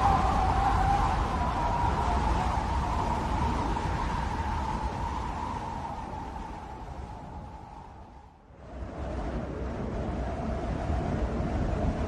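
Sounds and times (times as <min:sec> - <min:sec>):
wind blowing: 0:00.0 - 0:12.0.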